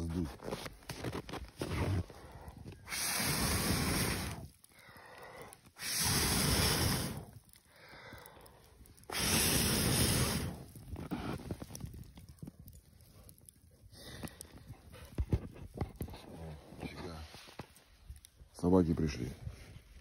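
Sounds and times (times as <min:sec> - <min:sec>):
person blowing on a fire: 0:01.6 - 0:04.6, 0:05.5 - 0:07.6, 0:09.0 - 0:11.9
breaths drawn in: 0:01.7 - 0:10.8.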